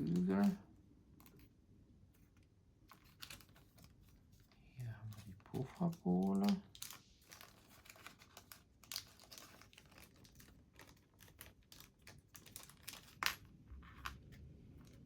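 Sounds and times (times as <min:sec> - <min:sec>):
small parts clicking and rustling: 0:00.0 - 0:00.6, 0:02.1 - 0:15.0.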